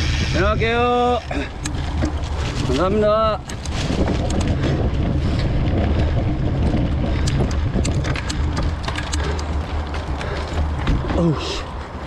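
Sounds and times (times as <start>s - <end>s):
bike clicks and rattles: 0.0s - 12.0s
wind rumbling on microphone: 0.0s - 12.0s.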